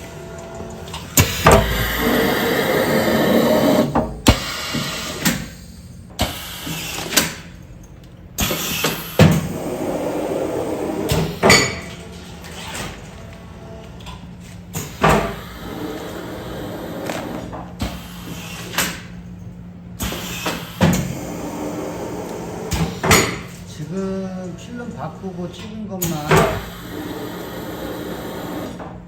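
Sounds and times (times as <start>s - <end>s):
sealing machine running: 0.0s - 5.3s, 14.8s - 19.2s, 26.0s - 28.9s
machine mechanism clunking: 0.0s - 29.0s.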